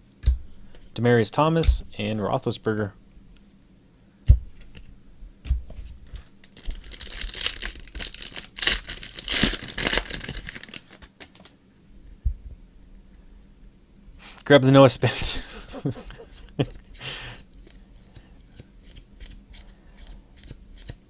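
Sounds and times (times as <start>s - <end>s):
wrapper tearing and crinkling: 6.4s - 11.5s.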